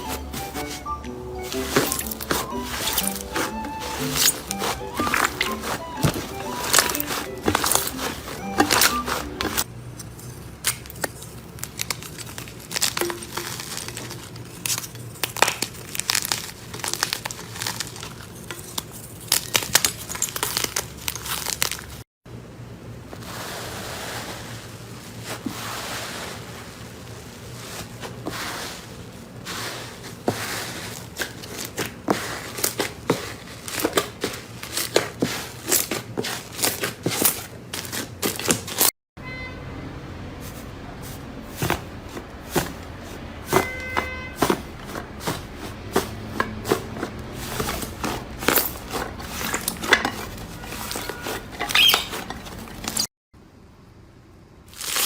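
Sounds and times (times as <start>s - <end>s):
slime crackling and popping: 11.6s - 18.1s, 54.7s - 55.0s.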